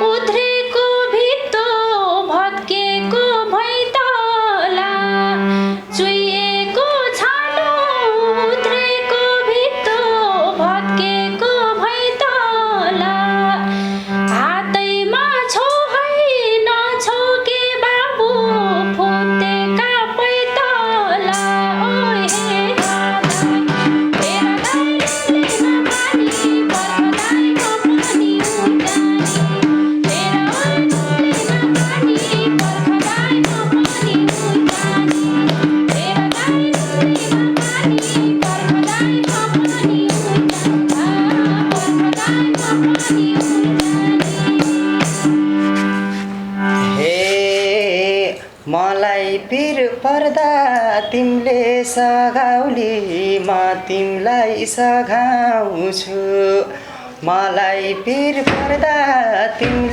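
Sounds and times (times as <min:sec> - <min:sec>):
gliding folk melody: 0:00.0 - 0:47.6
held drone notes: 0:18.3 - 0:47.1
hand drum strokes: 0:21.3 - 0:47.7, 0:58.5 - 0:59.9.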